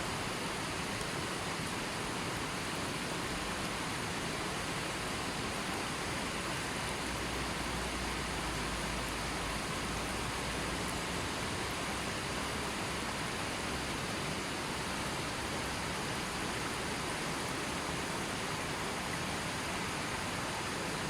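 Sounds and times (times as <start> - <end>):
river water flowing: 0.0 - 21.0.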